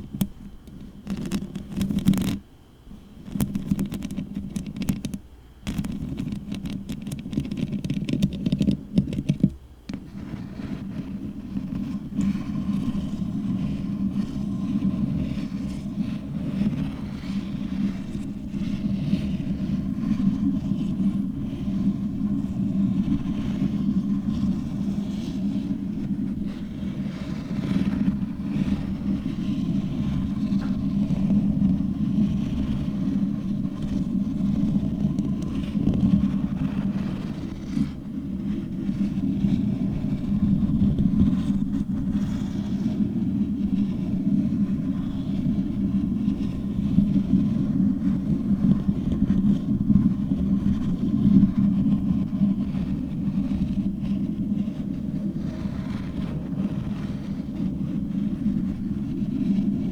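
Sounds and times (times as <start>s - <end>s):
fingernails scratching microphone: 0.0s - 2.4s, 3.2s - 59.8s.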